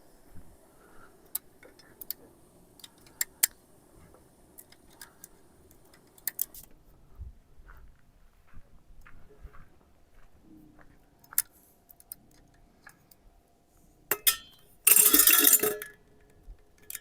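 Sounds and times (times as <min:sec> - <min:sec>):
campfire crackling: 0:00.1 - 0:06.9.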